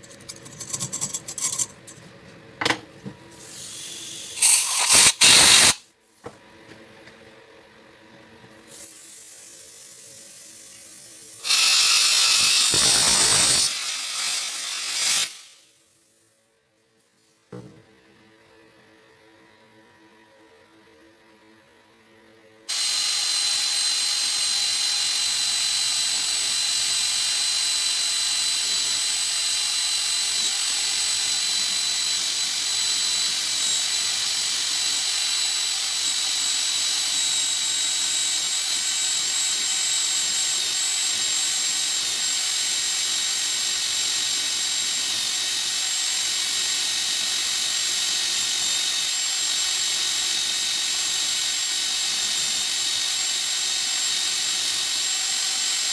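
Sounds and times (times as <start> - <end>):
power tool whining: 3.5 - 5.8, 11.4 - 15.6, 22.7 - 55.9.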